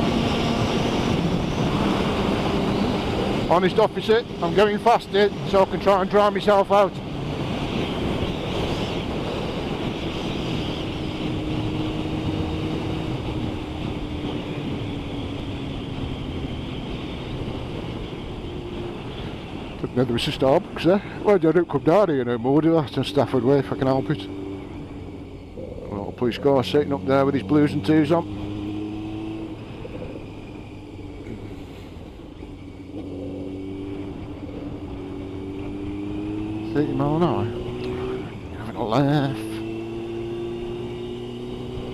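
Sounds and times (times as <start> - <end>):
motorcycle engine: 0.0 - 41.9
wind buffeting microphone: 0.0 - 41.9.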